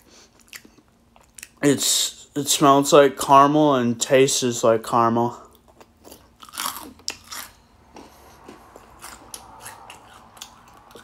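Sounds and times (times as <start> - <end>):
cereal crunching while chewing: 5.6 - 11.0.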